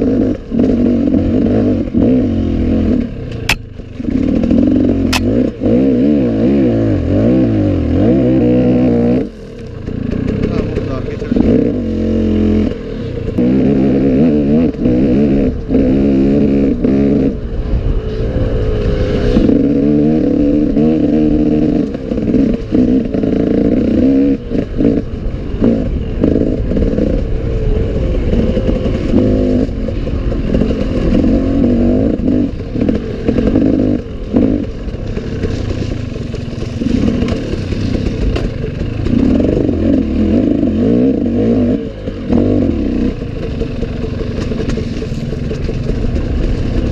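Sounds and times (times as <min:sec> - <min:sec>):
motorcycle engine revving: 0:00.0 - 0:46.9
bike clattering over rough ground: 0:34.7 - 0:39.4.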